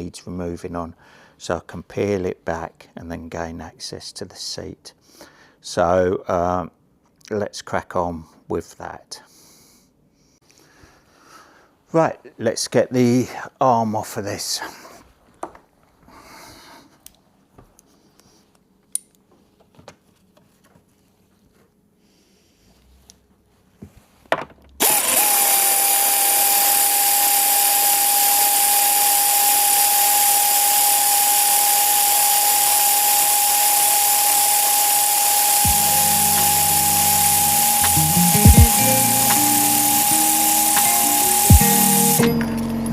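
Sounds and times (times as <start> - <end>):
power drill whining: 24.8 - 42.9.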